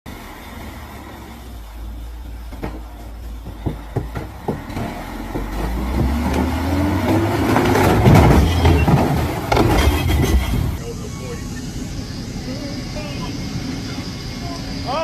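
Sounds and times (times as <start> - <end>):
heavy vehicle engine rumbling: 0.1 - 15.0
sharp engine knocks: 2.5 - 10.8.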